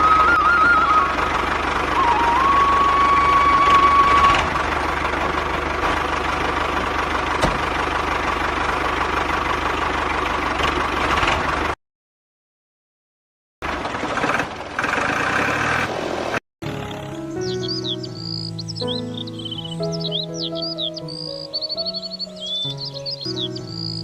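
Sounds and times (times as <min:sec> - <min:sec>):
held flute-like note: 0:00.0 - 0:04.6.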